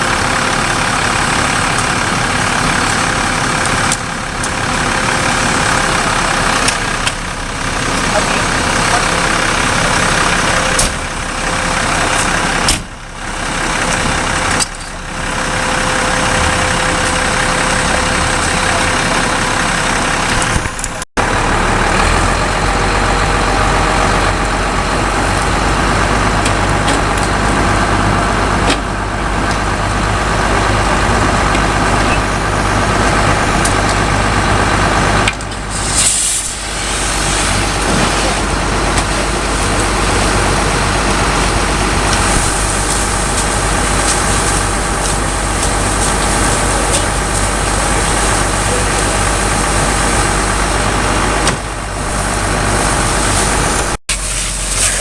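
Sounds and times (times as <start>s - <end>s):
deep low hum: 0.0s - 55.0s
fire engine running: 0.0s - 55.0s
hiss: 35.7s - 38.3s, 52.1s - 55.0s.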